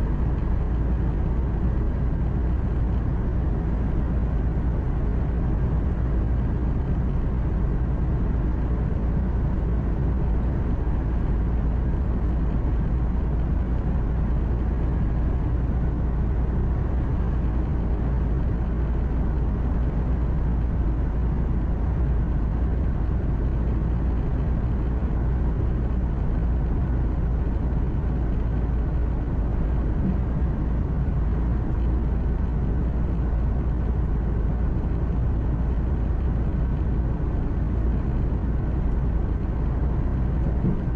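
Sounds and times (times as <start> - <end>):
road noise: 0.0 - 40.9
truck engine drone: 0.0 - 40.9.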